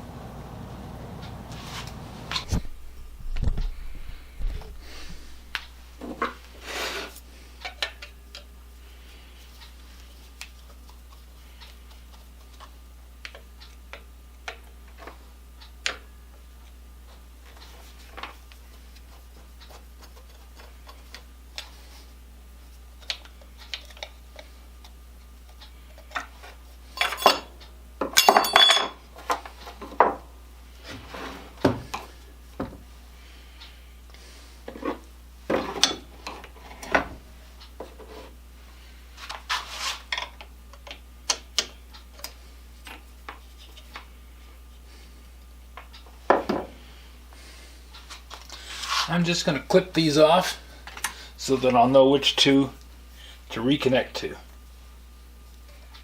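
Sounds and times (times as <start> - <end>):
low hum: 0.0 - 10.3
metal parts clinking: 28.2 - 29.0.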